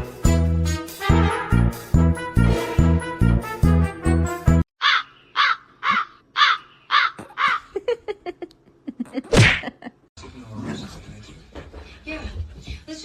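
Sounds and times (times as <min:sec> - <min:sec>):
background music: 0:00.0 - 0:04.6
animal calling harshly: 0:04.8 - 0:07.7.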